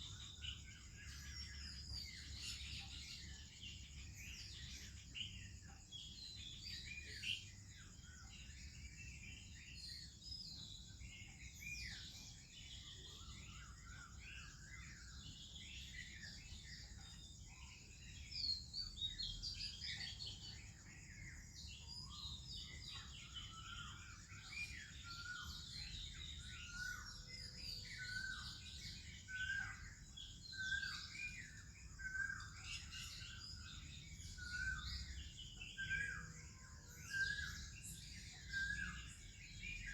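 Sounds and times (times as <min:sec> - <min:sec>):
songbirds chirping and warbling: 0:00.0 - 0:39.9.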